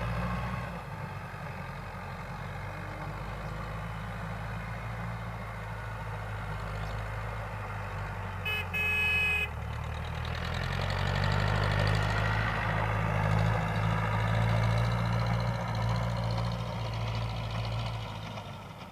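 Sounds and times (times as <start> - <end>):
tractor engine running: 1.2 - 18.9
horn tooting: 8.4 - 9.6.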